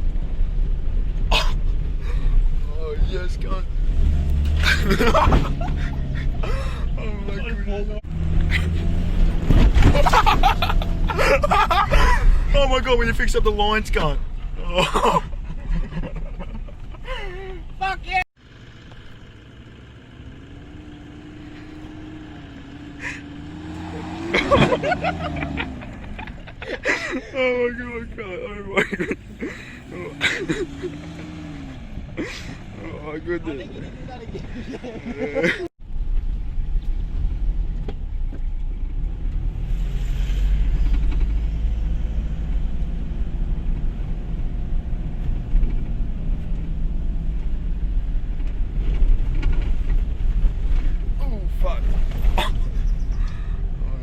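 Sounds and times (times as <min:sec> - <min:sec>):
vehicle engine from inside cab: 0:00.0 - 0:13.2, 0:17.6 - 0:33.1, 0:35.8 - 0:54.0
vehicle knocks and rattles: 0:08.4 - 0:12.4, 0:45.3 - 0:53.0.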